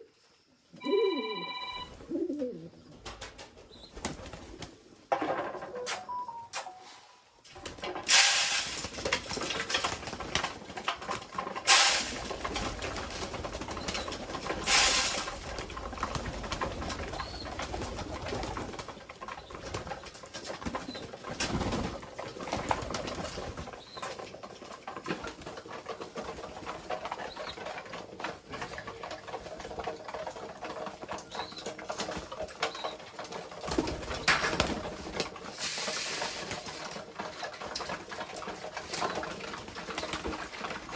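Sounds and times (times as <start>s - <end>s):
pigeons cooing: 0.7s - 3.2s.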